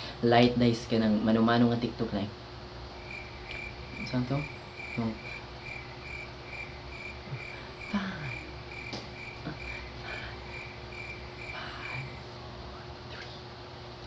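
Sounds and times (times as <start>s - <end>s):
cricket chirping: 2.9s - 12.4s
faint voices: 3.1s - 13.6s
faint knocks: 8.4s - 10.3s.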